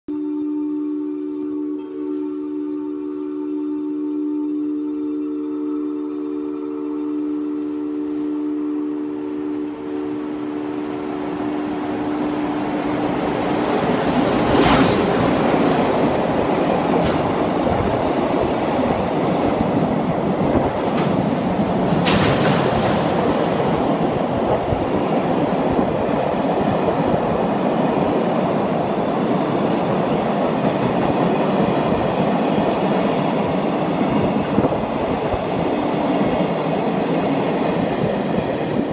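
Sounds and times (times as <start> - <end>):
freight train rumbling and clattering: 10.9 - 38.9.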